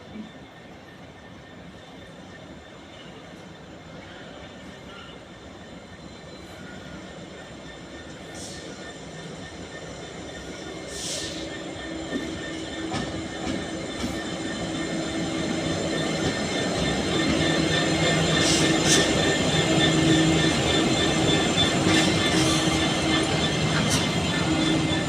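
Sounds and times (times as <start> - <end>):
diesel locomotive engine drone: 0.0 - 25.0
train wheels rumbling: 1.4 - 25.0
wheels squealing: 8.4 - 25.0.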